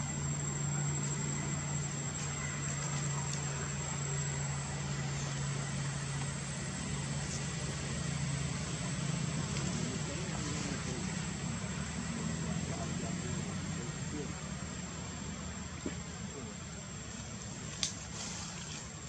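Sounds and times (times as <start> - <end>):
steady low hum: 0.0 - 19.0
thin high whine: 0.0 - 19.0.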